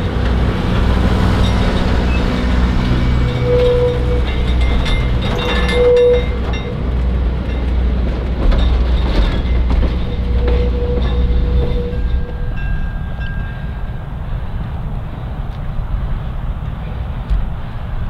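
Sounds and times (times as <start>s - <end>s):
locomotive rumble: 0.0s - 18.0s
wheel and rail noise: 0.0s - 18.0s
held tone: 1.4s - 6.9s, 9.5s - 14.0s.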